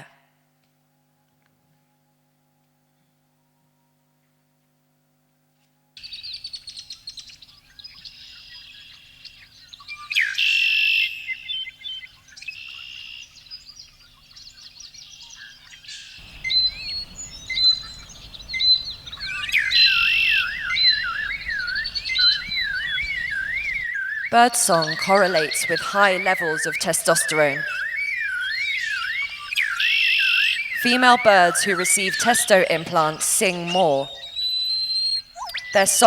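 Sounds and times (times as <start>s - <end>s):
warbling bird song: 6.0s - 36.0s
birds chirping and singing: 6.1s - 36.0s
low background rumble: 16.2s - 23.8s.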